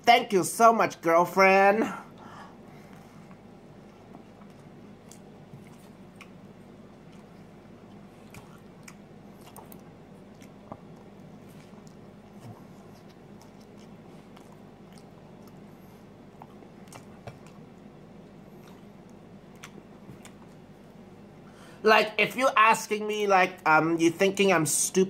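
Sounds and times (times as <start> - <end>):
steady low hum: 0.0 - 25.0
mouth clicks and squishes: 4.3 - 15.7, 16.3 - 20.7
person biting and chewing: 4.3 - 15.7, 16.3 - 20.7.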